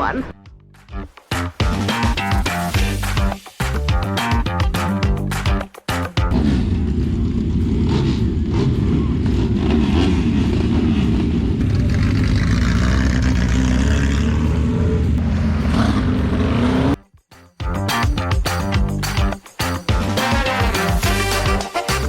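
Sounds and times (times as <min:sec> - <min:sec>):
motorcycle engines revving: 0:06.3 - 0:17.0.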